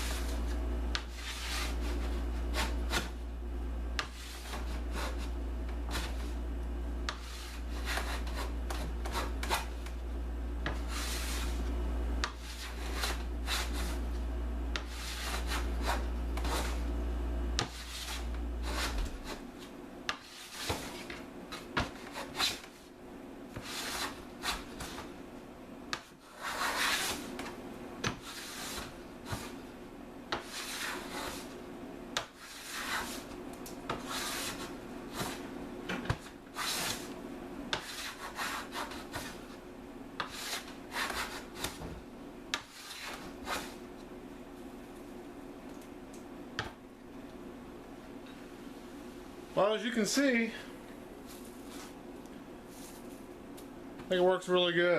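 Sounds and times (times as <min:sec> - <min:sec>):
low hum: 0:00.0 - 0:07.9, 0:08.5 - 0:20.0
hand plane shaving wood: 0:30.4 - 0:31.5, 0:34.0 - 0:35.4.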